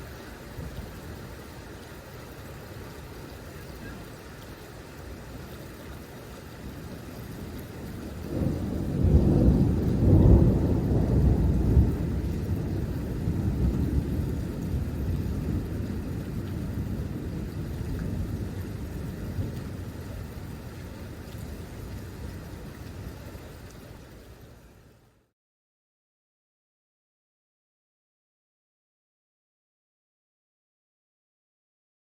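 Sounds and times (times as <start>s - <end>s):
rain hissing: 0.0s - 25.3s
thunder rumbling and cracking: 6.6s - 22.5s.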